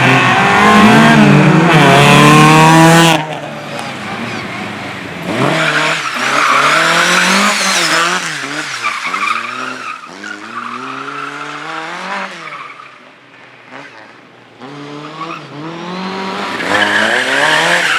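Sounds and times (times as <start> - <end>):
race car engine revving: 0.0 - 12.8.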